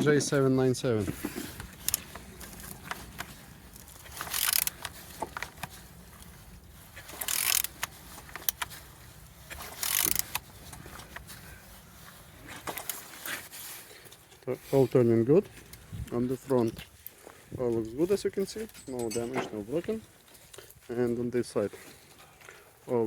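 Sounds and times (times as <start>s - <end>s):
scattered clicks: 1.6s - 6.3s, 7.1s - 8.7s, 9.5s - 11.3s.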